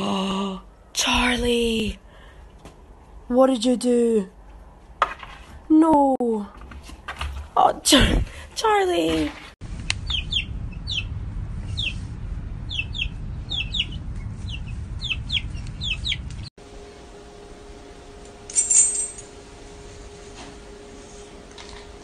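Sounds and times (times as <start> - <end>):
low rumble: 9.6 - 22.0
steady hum: 9.6 - 22.0
baby bird chirping: 10.0 - 16.5.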